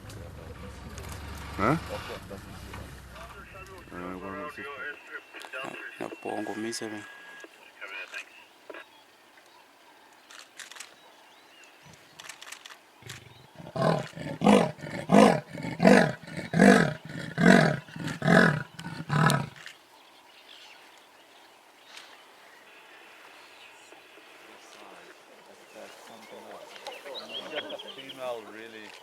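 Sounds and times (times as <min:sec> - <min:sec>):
lion roaring: 0:13.0 - 0:19.6.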